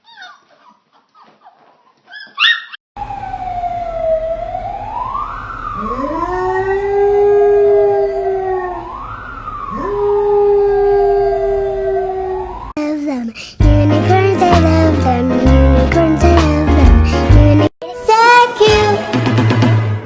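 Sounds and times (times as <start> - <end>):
siren wailing: 3.0 - 12.8
husky howling: 5.7 - 12.7.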